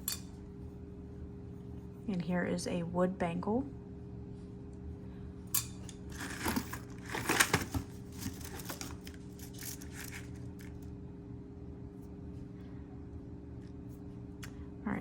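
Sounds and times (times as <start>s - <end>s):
steady low hum: 0.0s - 15.0s
jewelry clicking and rustling: 5.6s - 10.8s.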